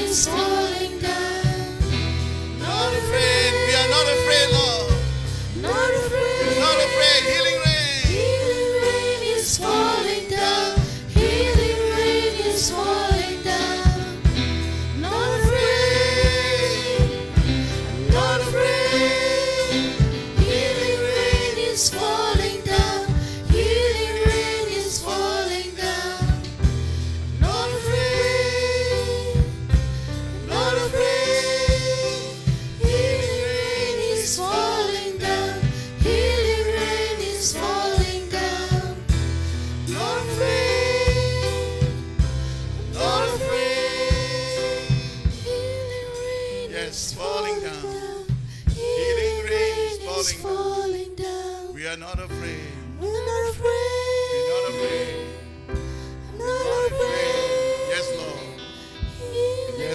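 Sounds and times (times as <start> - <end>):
drum hits: 0.0 - 46.2
band with bass line: 0.0 - 59.9
gospel singers: 0.0 - 59.9.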